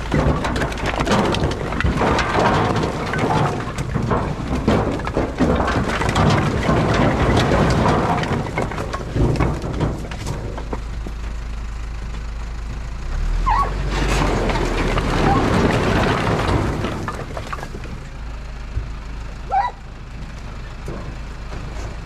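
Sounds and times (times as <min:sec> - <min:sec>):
diesel truck engine running: 0:00.0 - 0:22.0
firewood logs tumbling: 0:00.0 - 0:22.0.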